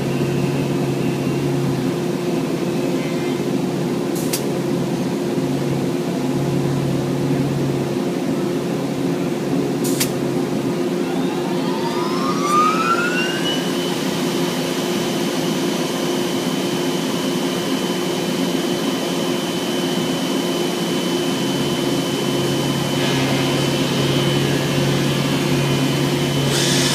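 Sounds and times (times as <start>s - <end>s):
deeper hum: 5.4s - 15.2s, 21.2s - 26.9s
vacuum motor whine: 10.3s - 26.9s.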